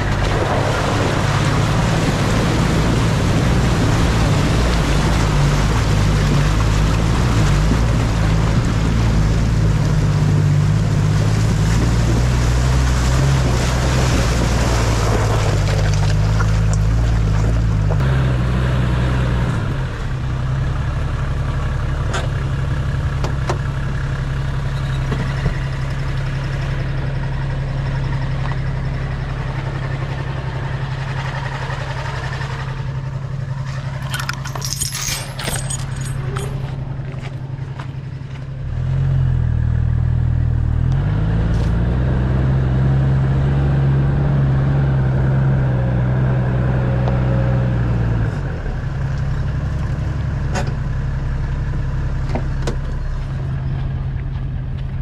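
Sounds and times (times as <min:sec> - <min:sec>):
car engine running: 0:19.6 - 0:55.0
clinking and rattling: 0:33.7 - 0:37.2.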